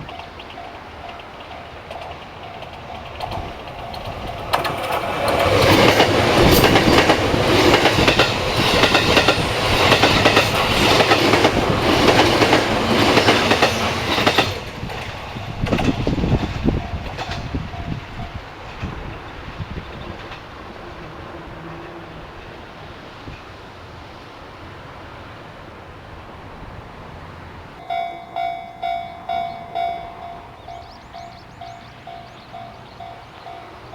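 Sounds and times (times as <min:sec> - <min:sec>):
repeated rail clicks: 0:00.0 - 0:18.0
train wheels on rails: 0:00.0 - 0:33.9.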